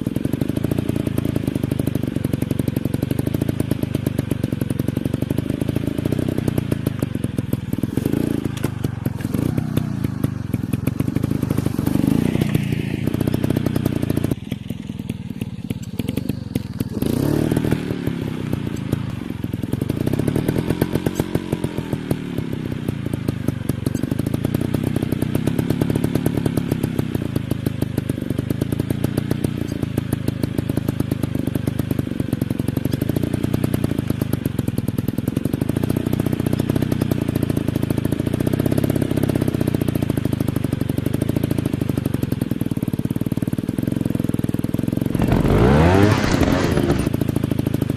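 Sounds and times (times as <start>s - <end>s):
dirt bike engines revving: 7.4s - 14.5s, 15.6s - 19.4s, 45.1s - 47.2s.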